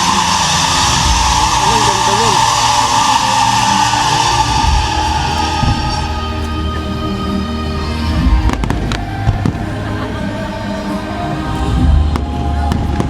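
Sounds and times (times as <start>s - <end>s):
fireworks bangs: 0.0s - 6.6s
low rumble: 0.0s - 13.0s
show music: 0.0s - 13.0s.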